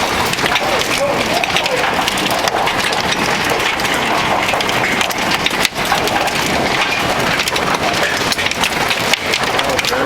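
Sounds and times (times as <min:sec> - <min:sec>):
hail clattering on hard surfaces: 0:00.0 - 0:10.0
steady rushing noise: 0:00.0 - 0:10.0.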